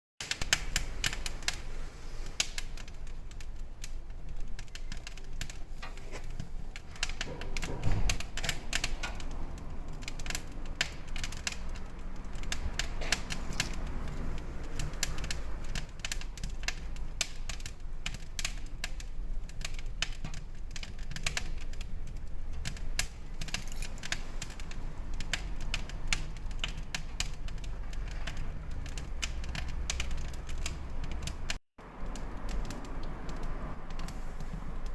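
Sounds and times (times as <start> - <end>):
small clicks and taps: 2.4 - 34.9.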